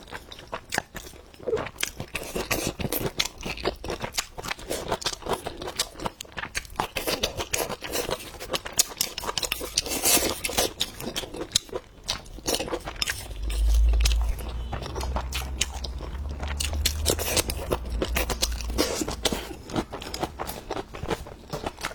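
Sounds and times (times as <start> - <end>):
wet chewing clicks: 0.7 - 21.9
low rumble: 12.4 - 21.1.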